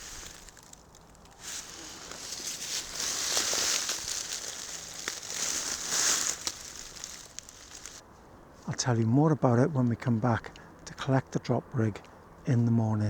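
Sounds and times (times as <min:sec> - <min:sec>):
rustling crackling noise: 0:00.0 - 0:08.8.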